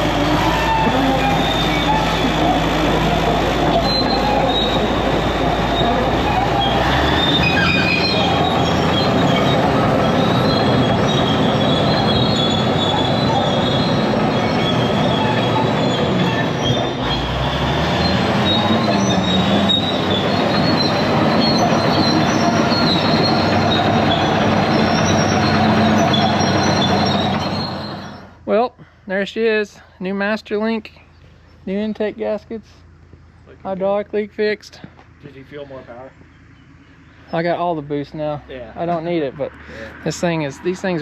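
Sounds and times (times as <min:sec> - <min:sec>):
steel tracks squealing and clanking: 0:00.0 - 0:28.5, 0:37.0 - 0:41.0
diesel engine running under load: 0:00.0 - 0:29.1, 0:30.8 - 0:41.0.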